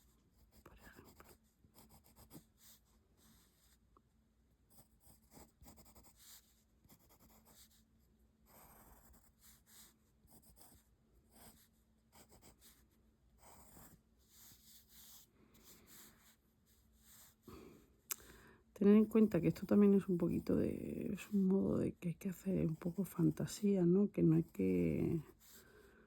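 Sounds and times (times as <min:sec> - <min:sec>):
pencil scratching on paper: 0:00.0 - 0:03.8, 0:04.7 - 0:17.5, 0:18.8 - 0:25.8.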